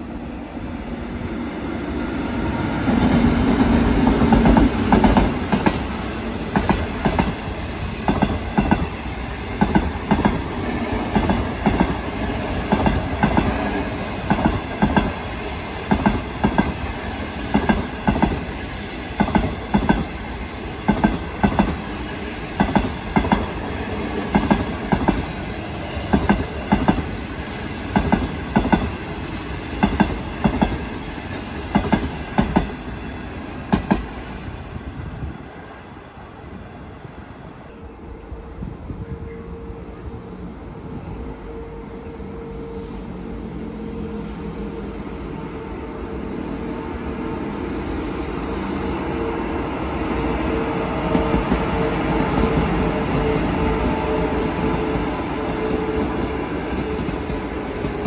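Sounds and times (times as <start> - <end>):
heavy train rumble: 0.0 - 58.0
train wheels clacking: 6.5 - 10.5, 11.1 - 20.2, 20.8 - 29.0, 29.6 - 33.1, 50.2 - 58.0.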